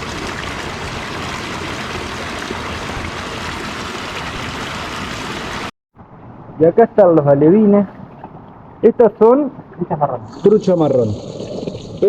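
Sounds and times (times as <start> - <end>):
running water rushing: 0.0 - 5.7, 10.2 - 12.0.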